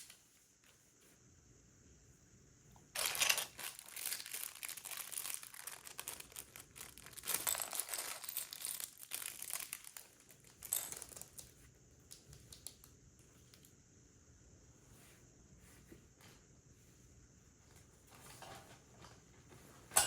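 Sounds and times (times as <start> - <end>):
plastic bag crinkling: 3.0 - 11.6.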